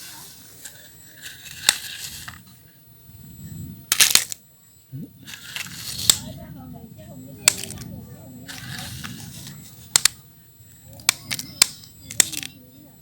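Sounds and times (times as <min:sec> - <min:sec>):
crunching and scraping: 0:00.0 - 0:02.7, 0:03.9 - 0:04.4, 0:05.2 - 0:06.4, 0:07.4 - 0:12.7
plastic toy clicks: 0:01.2 - 0:02.4, 0:03.9 - 0:04.4, 0:05.3 - 0:06.3, 0:07.4 - 0:07.9, 0:08.5 - 0:10.2, 0:10.9 - 0:12.6.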